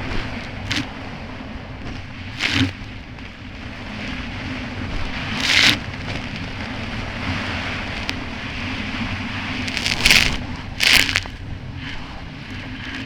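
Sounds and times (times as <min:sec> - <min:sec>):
hiss of water and wind: 0:00.0 - 0:13.0
jet ski engine running: 0:00.0 - 0:13.0.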